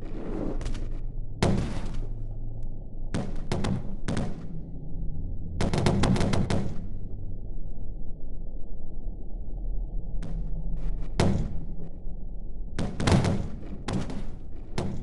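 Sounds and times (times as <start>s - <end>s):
rapid gunfire-like cracks: 3.2s - 4.5s, 5.6s - 6.9s, 12.8s - 15.0s.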